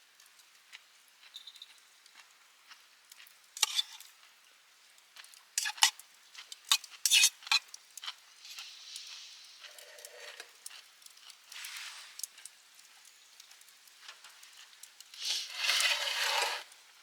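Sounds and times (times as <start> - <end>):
faint sizzle: 0.0 - 17.0
metal utensils scraping a pan: 3.6 - 4.0, 5.6 - 6.0, 6.7 - 7.7, 8.4 - 10.7, 15.2 - 16.8.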